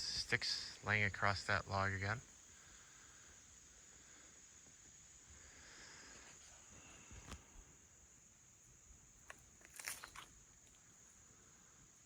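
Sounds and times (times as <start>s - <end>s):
high-pitched insect trill: 0.0s - 12.0s
leaves and twigs rustling: 9.2s - 11.1s.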